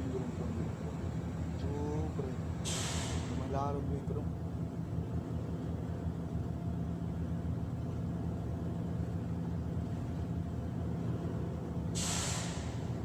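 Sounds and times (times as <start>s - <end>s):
low engine hum: 0.0s - 13.0s
burst of hiss: 2.6s - 3.4s, 12.0s - 12.9s.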